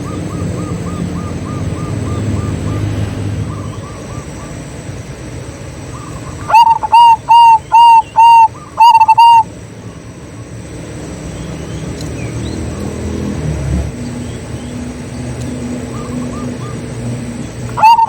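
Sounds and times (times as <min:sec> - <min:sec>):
dove cooing: 0:05.8 - 0:09.5, 0:15.8 - 0:18.0.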